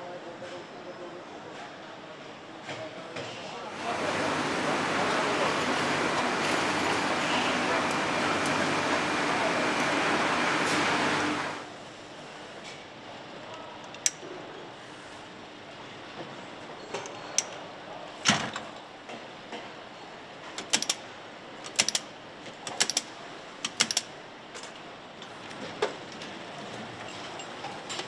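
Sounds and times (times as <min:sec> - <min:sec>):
factory hum: 0:00.0 - 0:28.0.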